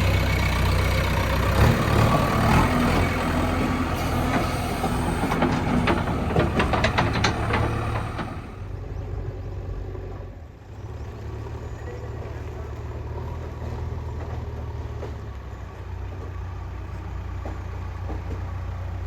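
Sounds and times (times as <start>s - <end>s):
diesel engine running: 0.0s - 19.0s
knocks and clatters: 4.1s - 8.7s.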